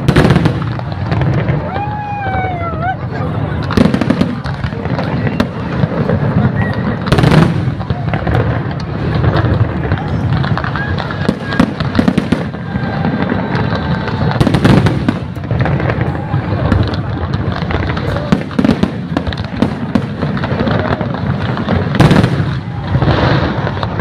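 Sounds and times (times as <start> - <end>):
fireworks bangs: 0.0 - 24.0
fireworks crackling and popping: 0.0 - 24.0.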